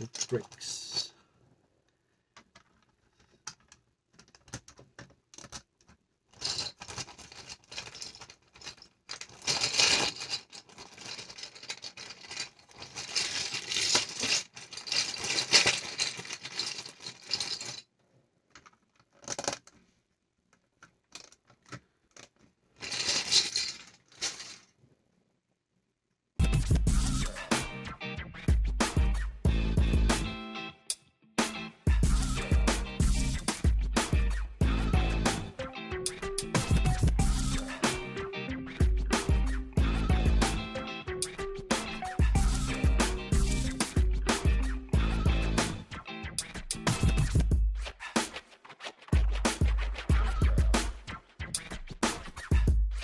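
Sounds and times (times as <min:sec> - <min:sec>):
plastic bricks clattering: 0:02.4 - 0:17.9, 0:18.5 - 0:19.9, 0:20.8 - 0:24.7.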